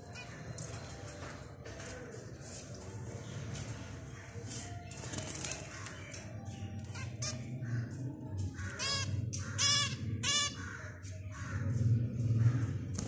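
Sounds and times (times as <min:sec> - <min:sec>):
loud nasal bird calls: 0:05.6 - 0:11.8.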